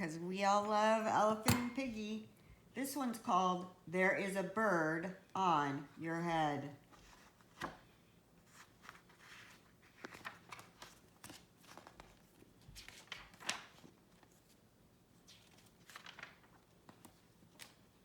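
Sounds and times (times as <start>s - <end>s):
book rustling and clicking: 8.4s - 14.6s, 15.3s - 18.0s
paper pages turning: 8.4s - 14.6s, 15.2s - 17.9s.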